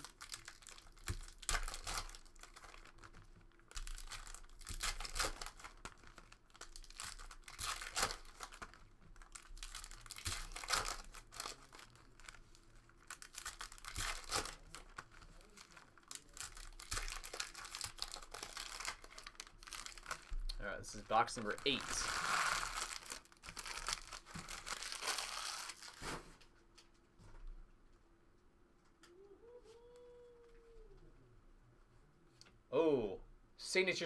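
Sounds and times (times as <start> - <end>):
wrappers tearing and crinkling: 0.0 - 26.4.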